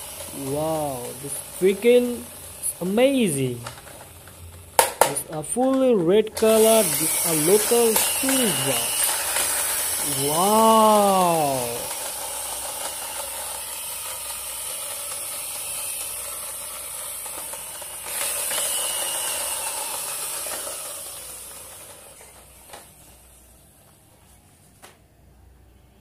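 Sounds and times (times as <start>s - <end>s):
toy bus motor whirring: 0.0s - 24.3s.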